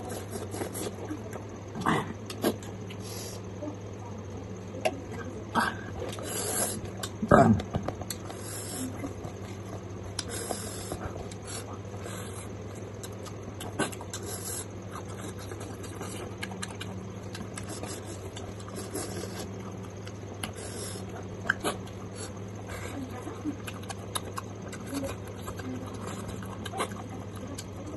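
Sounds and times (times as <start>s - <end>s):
chewing and lip-smacking: 0.0s - 3.1s, 5.9s - 27.9s
low electrical hum: 0.0s - 27.9s
wet mouth clicks: 2.2s - 3.0s, 6.1s - 8.5s, 23.6s - 27.8s.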